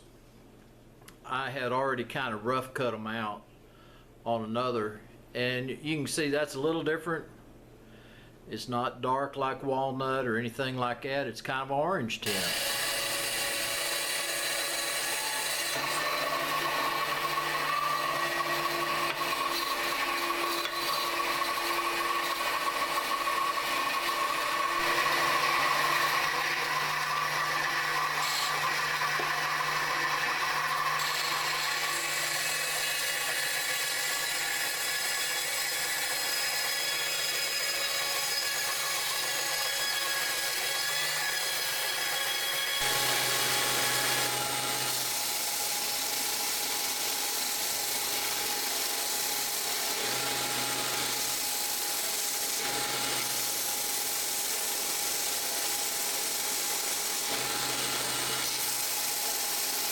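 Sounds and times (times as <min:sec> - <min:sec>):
power saw cutting wood: 0:12.2 - 0:59.9.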